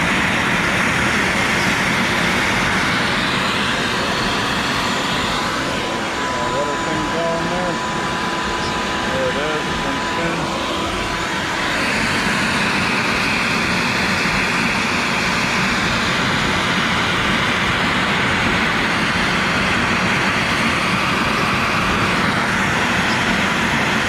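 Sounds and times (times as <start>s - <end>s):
dust collection vacuum running: 0.0s - 24.0s
cnc router spindle cutting plastic: 1.2s - 14.2s.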